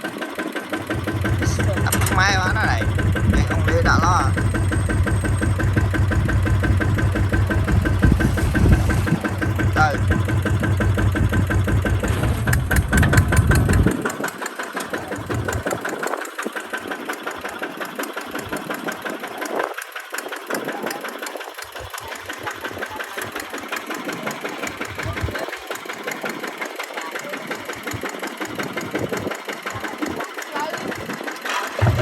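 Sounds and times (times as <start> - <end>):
tractor diesel engine knocking: 0.0 - 32.0
heavy low rumble: 1.0 - 14.1, 31.8 - 32.0.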